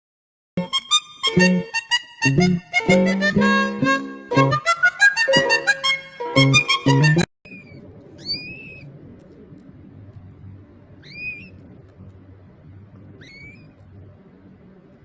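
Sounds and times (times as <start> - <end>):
small animal high-pitched call: 7.5 - 8.9, 11.0 - 11.6, 13.2 - 13.8
faint low hum: 7.5 - 15.0.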